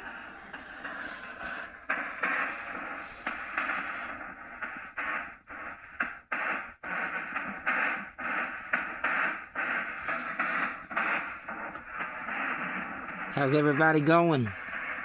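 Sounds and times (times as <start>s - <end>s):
fragments of broadcast sound: 0.0s - 15.0s
radio static: 0.0s - 15.0s.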